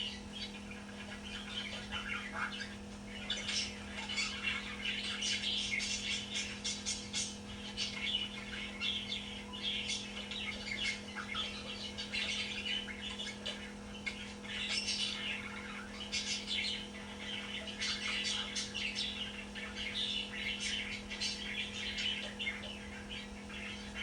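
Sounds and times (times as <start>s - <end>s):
budgerigar chirping and chattering: 0.0s - 24.0s
steady low hum: 0.0s - 24.0s.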